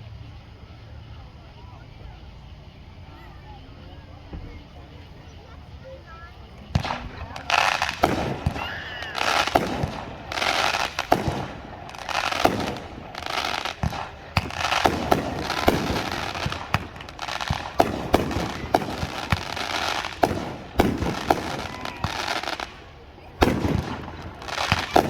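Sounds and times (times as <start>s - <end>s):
firework hissing: 0.0s - 25.0s
firework shells bursting: 6.1s - 25.0s.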